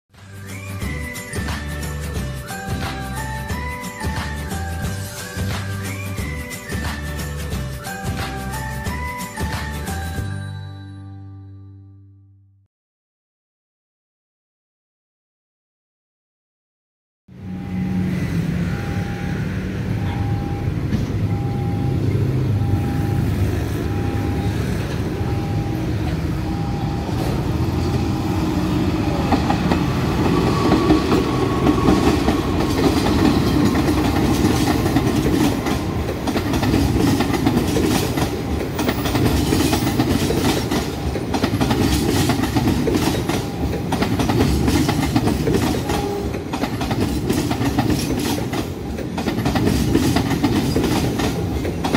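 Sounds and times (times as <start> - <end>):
level-crossing signal beeping: 0.3 - 10.3, 17.4 - 29.4, 42.0 - 44.6
train rumbling past: 17.3 - 51.9
train wheels clattering over rail joints: 30.7 - 51.9.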